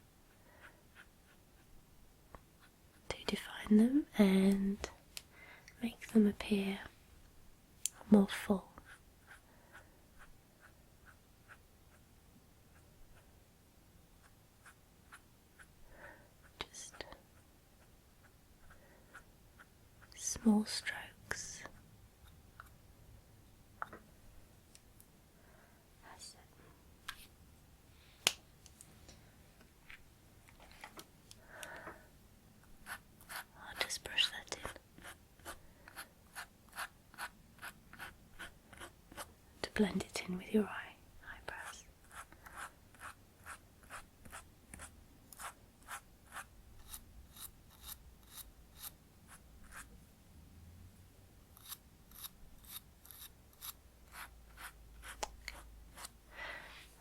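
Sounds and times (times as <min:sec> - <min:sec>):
soft rustle: 0:27.1 - 0:31.1.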